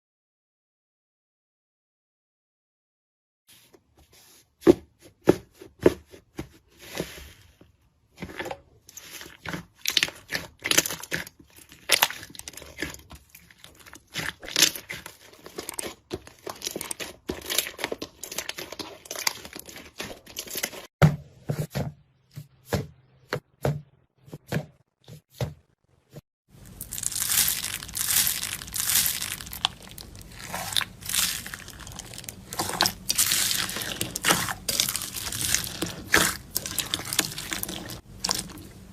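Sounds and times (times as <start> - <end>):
slime popping and crackling: 9.7 - 20.9, 26.6 - 38.7.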